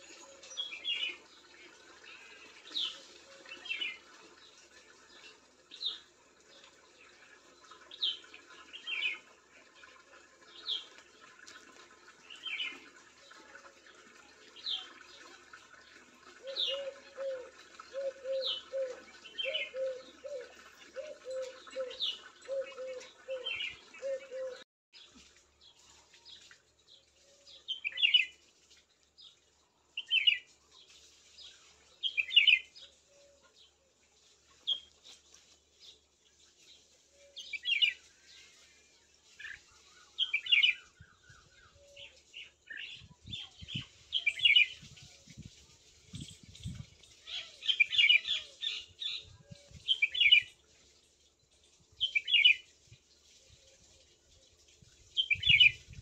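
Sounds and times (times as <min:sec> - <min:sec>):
birds chirping: 0:15.8 - 0:26.4.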